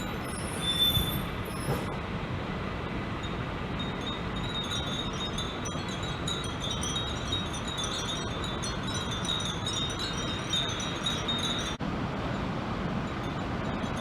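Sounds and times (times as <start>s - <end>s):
wind chimes tinkling: 3.2s - 11.8s, 13.1s - 14.0s.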